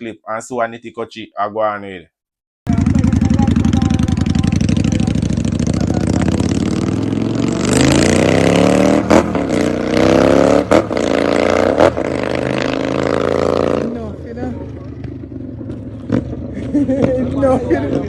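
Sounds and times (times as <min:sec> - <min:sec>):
motorcycle engine revving: 0:02.7 - 0:18.0.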